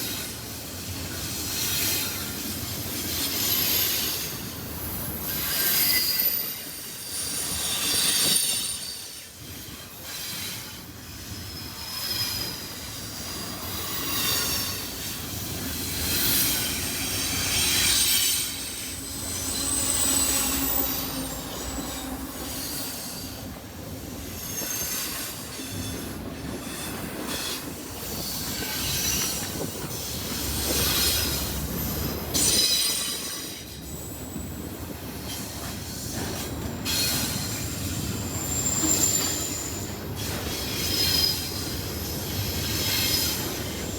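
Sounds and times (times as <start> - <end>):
freight train cars rolling: 0.0 - 43.9
high-pitched wheel squeal: 17.2 - 23.5.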